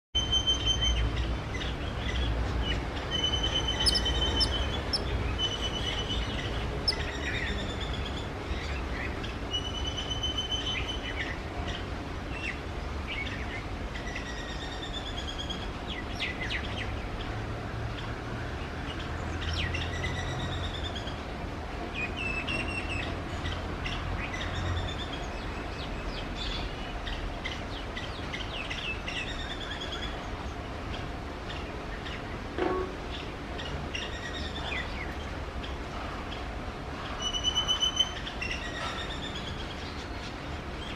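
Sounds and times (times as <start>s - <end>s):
sparrow chirping: 0.2s - 11.4s
birdsong: 0.2s - 21.3s, 21.9s - 40.9s.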